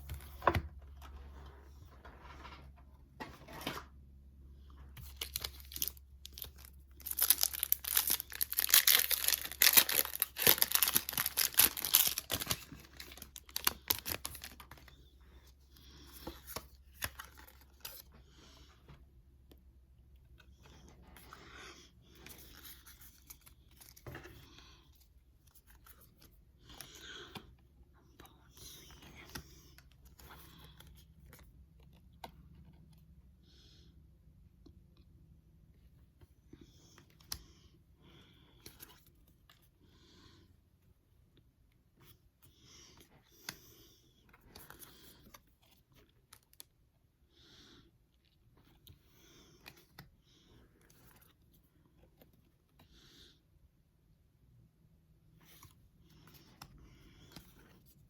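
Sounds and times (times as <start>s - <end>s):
foil wrapper crinkling and tearing: 5.0s - 14.7s
trading cards rustling: 5.0s - 15.1s.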